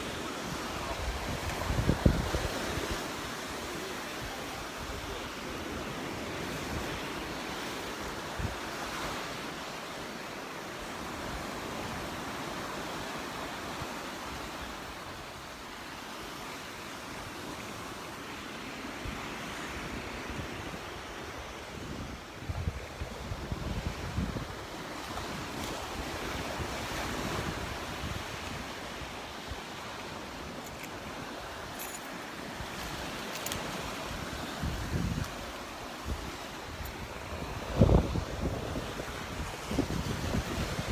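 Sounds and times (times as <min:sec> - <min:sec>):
surf washing onto beach: 0:00.0 - 0:40.9
wind buffeting microphone: 0:00.7 - 0:03.1, 0:32.4 - 0:40.9.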